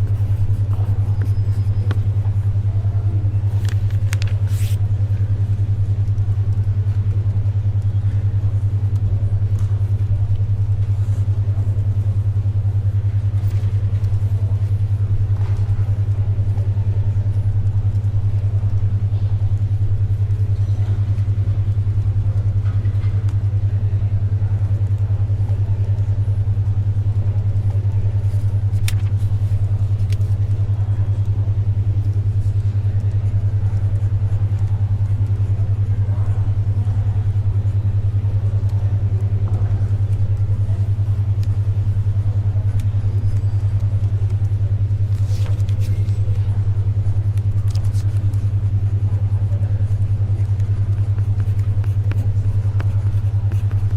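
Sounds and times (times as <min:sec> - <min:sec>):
paper and pencil sounds: 0:00.0 - 0:02.4, 0:03.2 - 0:04.8, 0:27.6 - 0:30.6, 0:33.8 - 0:35.5, 0:42.7 - 0:49.0, 0:50.0 - 0:53.9
faint library background noise: 0:00.0 - 0:53.9
pulsing low hum tone: 0:00.0 - 0:53.9.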